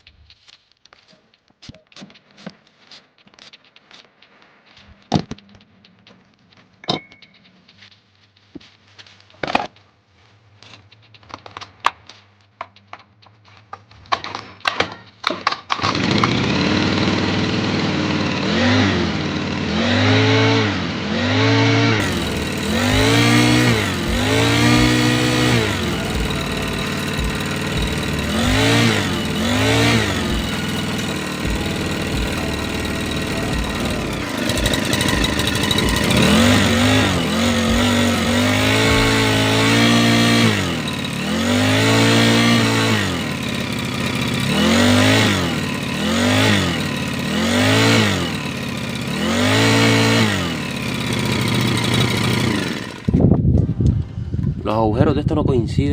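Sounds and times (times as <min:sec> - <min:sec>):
motor running at varying speed: 0:15.9 - 0:53.4.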